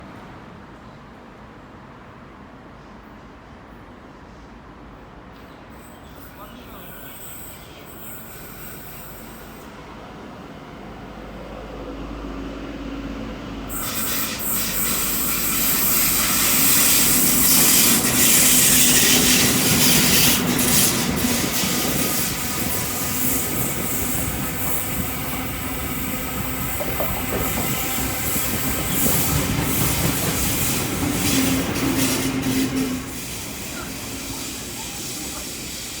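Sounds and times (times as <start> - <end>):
diesel train passing: 0.0 - 36.0.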